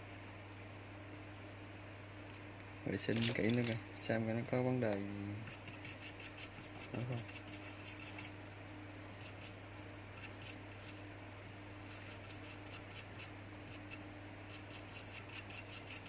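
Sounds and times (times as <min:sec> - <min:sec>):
low electrical hum: 0:00.0 - 0:16.0
tool scratching circuit board: 0:05.4 - 0:08.3, 0:09.2 - 0:09.6, 0:10.2 - 0:11.1, 0:11.8 - 0:16.0.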